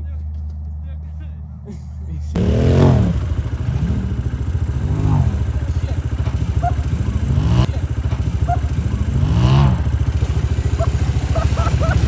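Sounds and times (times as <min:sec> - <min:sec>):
atv engine revving: 0:02.4 - 0:12.0.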